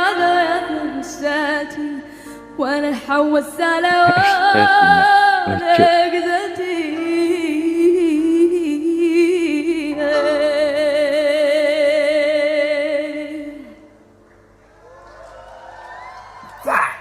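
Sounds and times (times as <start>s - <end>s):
woman singing with vibrato: 3.7s - 6.4s.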